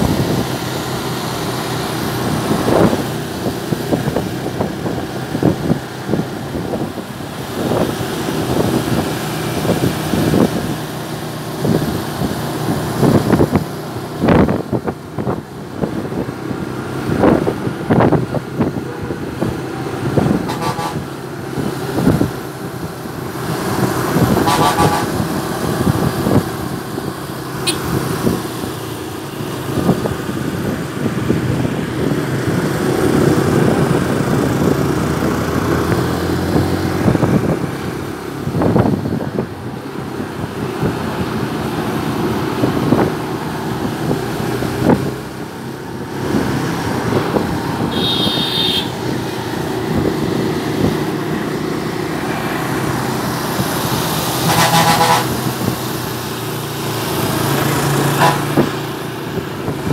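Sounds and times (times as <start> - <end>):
wind and road noise: 0.0 - 59.9
horn honks: 20.4 - 21.1, 24.4 - 25.2, 27.6 - 28.0, 47.9 - 49.0, 54.4 - 55.4, 58.1 - 58.6.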